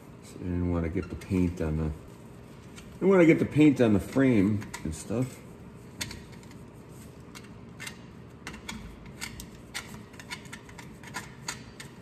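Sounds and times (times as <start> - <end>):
tool scratching and clicking on metal: 7.2 - 12.0.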